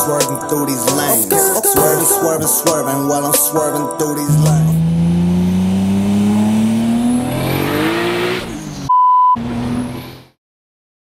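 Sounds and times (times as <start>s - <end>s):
car engine accelerating hard: 4.3s - 10.4s
censor bleep: 8.9s - 9.4s.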